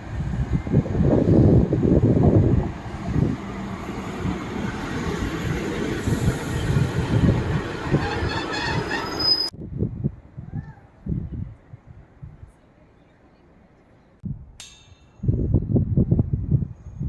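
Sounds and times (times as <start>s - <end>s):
train rumbling past: 0.0s - 9.5s
high wheel squeal: 5.7s - 9.5s.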